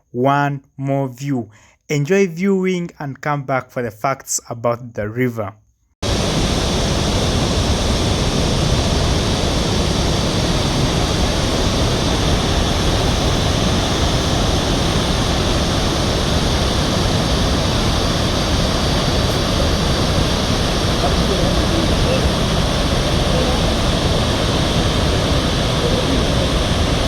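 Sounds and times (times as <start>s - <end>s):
large waterfall rushing: 6.0s - 27.0s.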